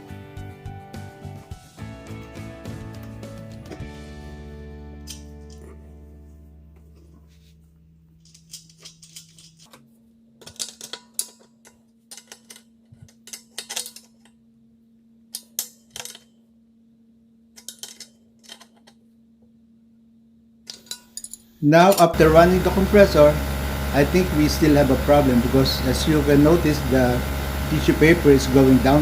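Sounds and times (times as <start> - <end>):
metal tools clinking: 8.2 - 9.8, 10.4 - 14.3, 20.7 - 22.2.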